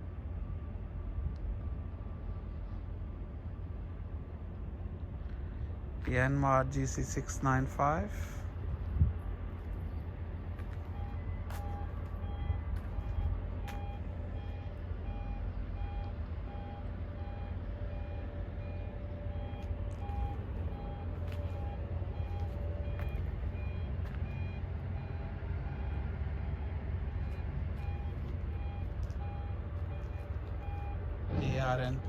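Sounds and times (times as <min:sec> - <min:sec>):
engine running: 0:00.0 - 0:32.0
reversing alarm beeping: 0:10.6 - 0:32.0.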